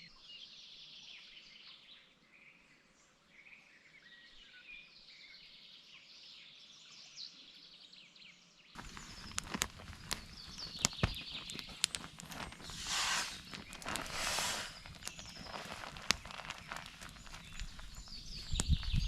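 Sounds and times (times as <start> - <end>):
faint birds chirping: 0.0 - 19.0
short bird calls: 12.6 - 18.6.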